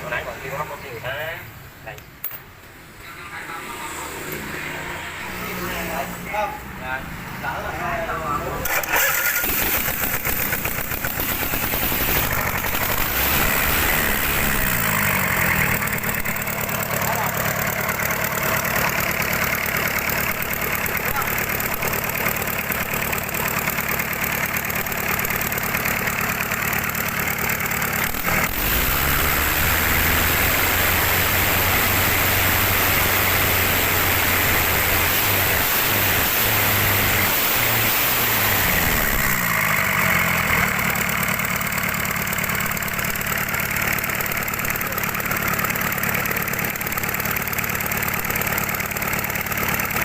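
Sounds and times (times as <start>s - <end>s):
boat engine running: 8.8s - 23.2s.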